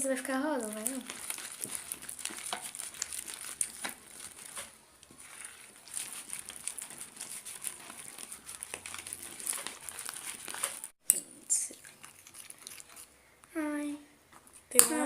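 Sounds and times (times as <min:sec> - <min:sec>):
slime sticky clicks and crackles: 0:00.7 - 0:11.2.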